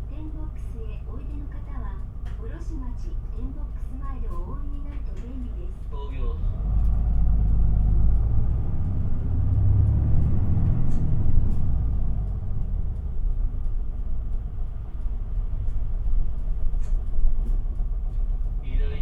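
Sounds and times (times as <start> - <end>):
bus diesel engine rumble: 0.0 - 19.0
faint clicks: 1.2 - 5.6.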